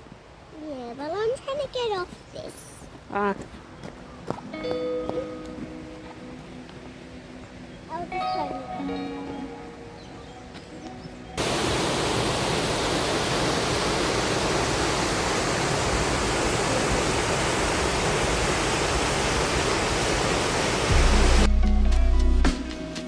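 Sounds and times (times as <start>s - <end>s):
waterfall rushing: 11.2s - 21.5s.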